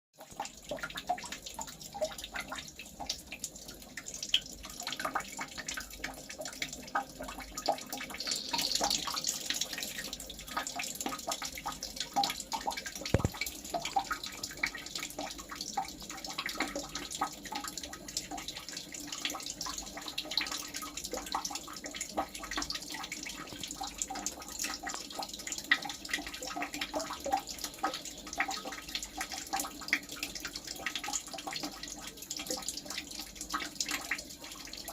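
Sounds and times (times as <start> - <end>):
water trickling and dripping: 0.2 - 34.9
small ticks and clicks: 13.0 - 14.2, 24.8 - 25.2
sharp click: 13.2 - 13.4.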